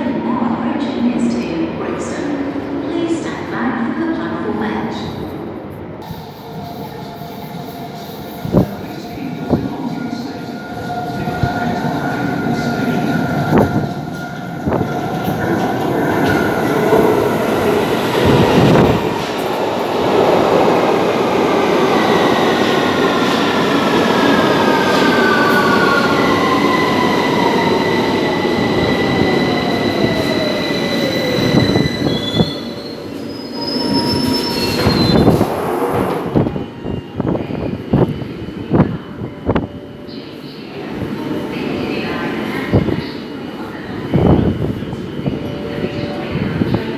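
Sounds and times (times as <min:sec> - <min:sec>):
train rumble and wheel noise: 0:00.0 - 0:46.9.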